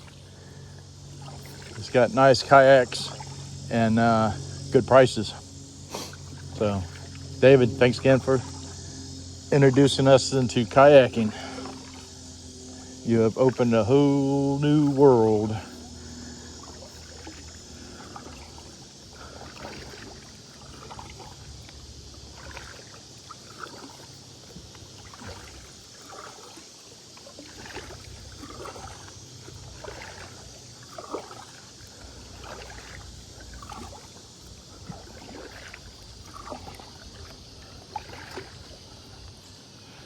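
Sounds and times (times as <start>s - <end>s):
paddle splashing in water: 0.0s - 40.0s.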